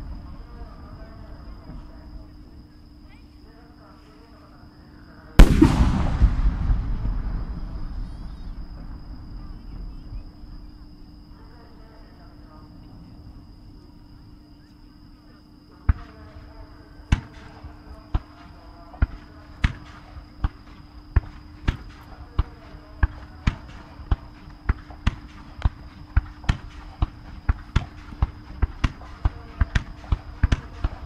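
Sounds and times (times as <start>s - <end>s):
fireworks bangs: 5.4s - 11.2s.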